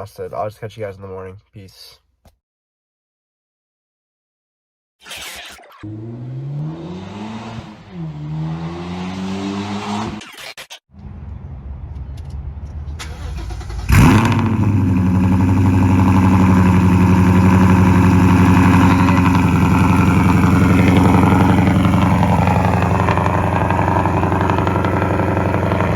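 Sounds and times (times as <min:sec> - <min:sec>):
car engine starting and idling: 0:11.0 - 0:25.9.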